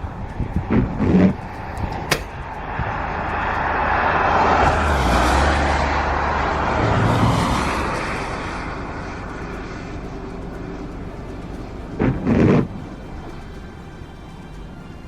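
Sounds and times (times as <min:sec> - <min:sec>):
wind blasting across microphone: 0:00.0 - 0:13.4
sharp click: 0:01.8 - 0:02.4.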